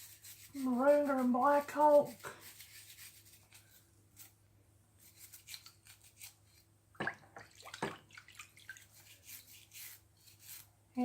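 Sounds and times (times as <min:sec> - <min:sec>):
brushing metal parts: 0:00.0 - 0:04.4, 0:05.0 - 0:06.7, 0:08.8 - 0:11.0.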